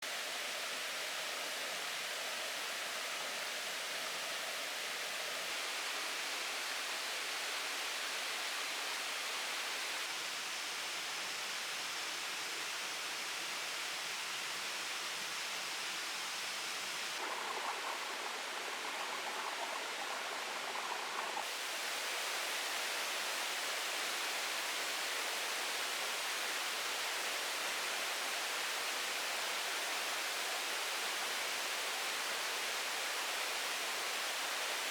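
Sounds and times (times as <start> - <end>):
water rushing: 17.2 - 23.8.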